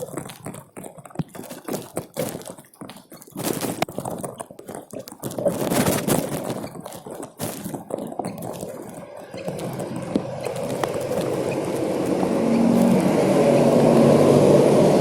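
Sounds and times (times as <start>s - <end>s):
rustling: 0.0s - 14.6s
running water splashing: 1.2s - 15.0s
heavy rain: 8.4s - 15.0s.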